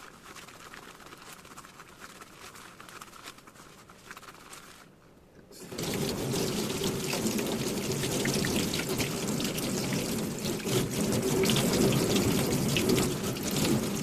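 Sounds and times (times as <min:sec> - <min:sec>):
tap water running into sink: 0:05.6 - 0:14.0.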